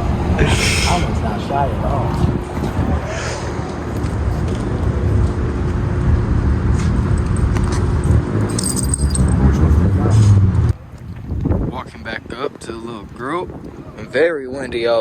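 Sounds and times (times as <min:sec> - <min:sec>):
wind buffeting microphone: 0:00.0 - 0:08.4, 0:09.3 - 0:15.0
car engines running: 0:00.0 - 0:10.8
high metallic jingle: 0:08.4 - 0:09.6.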